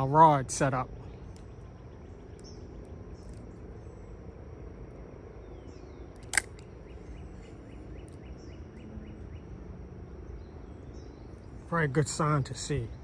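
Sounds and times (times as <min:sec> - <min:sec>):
birds chirping: 0:00.0 - 0:13.0
high insect drone: 0:00.0 - 0:13.0
low steady rumble: 0:00.0 - 0:13.0
sharp click: 0:06.2 - 0:06.7.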